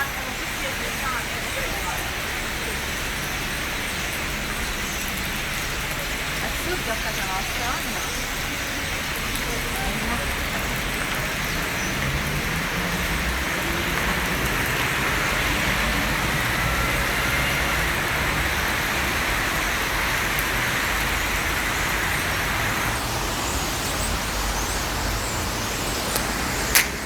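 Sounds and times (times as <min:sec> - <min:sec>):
city traffic rumble: 0:00.0 - 0:27.0
flock of birds chattering: 0:00.0 - 0:27.0.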